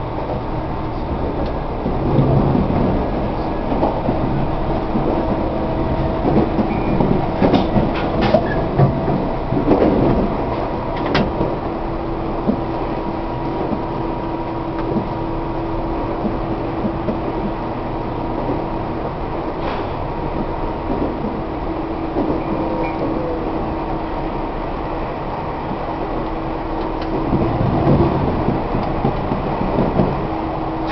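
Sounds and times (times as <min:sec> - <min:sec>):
train wheels rumbling: 0:00.0 - 0:30.9
sharp clicks and knocks: 0:06.2 - 0:11.6.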